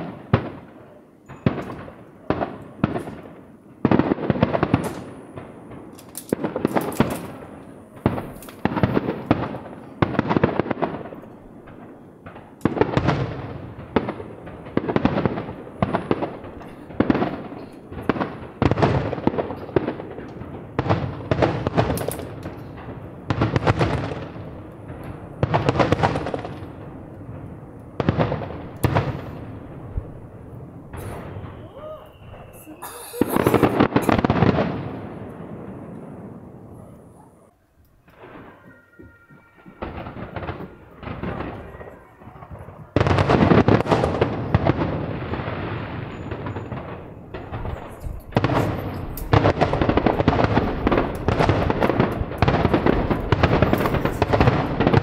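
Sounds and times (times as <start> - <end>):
fireworks bangs: 0.0 - 55.0.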